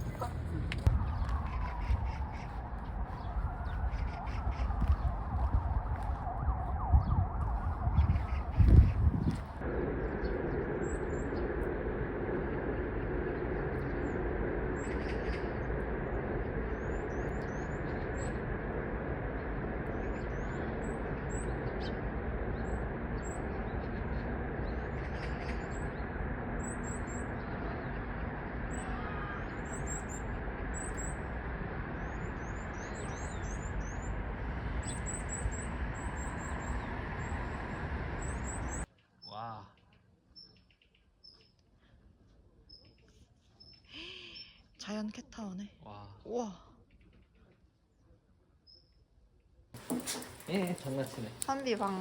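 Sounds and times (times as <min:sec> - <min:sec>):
small birds chirping: 0:00.0 - 0:06.2, 0:07.0 - 0:11.6, 0:12.7 - 0:41.7, 0:49.8 - 0:52.0
steady low noise: 0:00.0 - 0:38.9.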